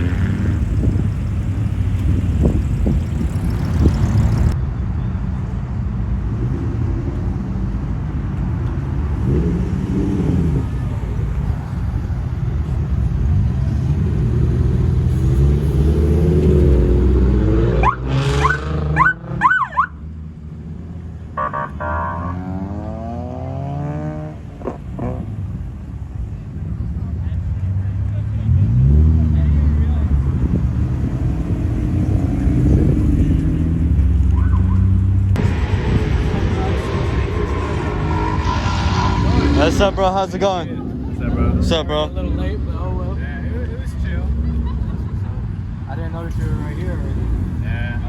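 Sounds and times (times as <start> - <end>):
car engines revving: 0.0 - 4.7, 5.6 - 48.0
sharp rising whines: 35.4 - 40.9.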